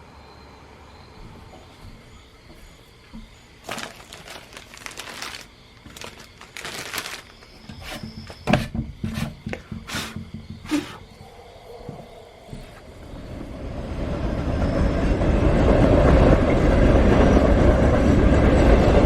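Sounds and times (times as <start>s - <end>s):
rustling and crinkling: 1.2s - 11.2s, 11.8s - 13.1s
sharp knocks and clatter: 7.6s - 10.9s.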